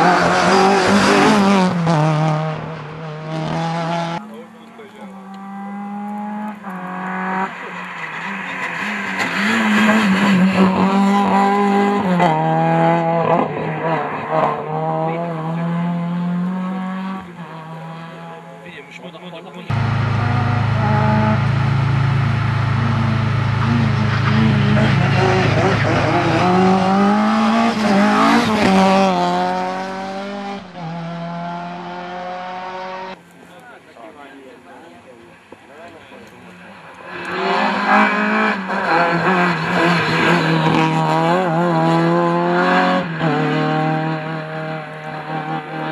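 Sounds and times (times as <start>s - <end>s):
rally car engine revving: 0.0s - 18.6s, 19.6s - 33.2s, 36.7s - 45.9s.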